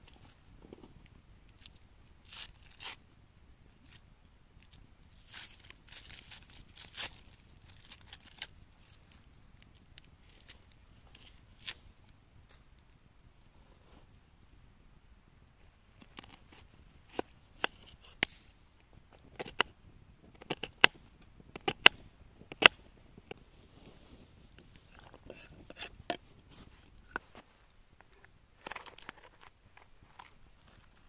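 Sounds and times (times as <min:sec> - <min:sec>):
scraping and rustling on board: 0:23.6 - 0:27.5.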